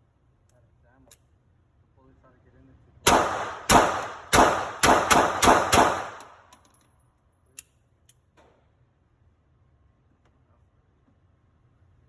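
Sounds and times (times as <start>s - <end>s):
pistol shots echoing: 3.1s - 6.5s.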